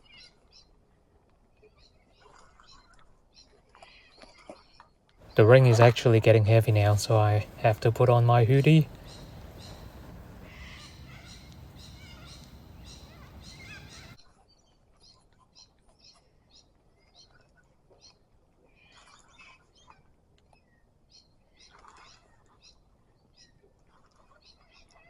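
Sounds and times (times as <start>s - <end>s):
small birds chirping: 5.2s - 14.2s
steady hiss: 5.3s - 14.2s.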